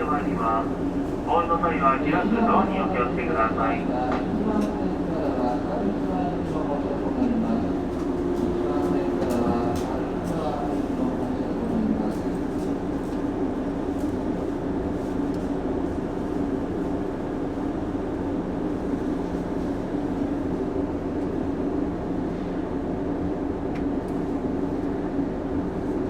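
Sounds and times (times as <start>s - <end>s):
train traction motor hum: 0.0s - 15.4s
wheels rumbling on rail: 4.1s - 21.3s.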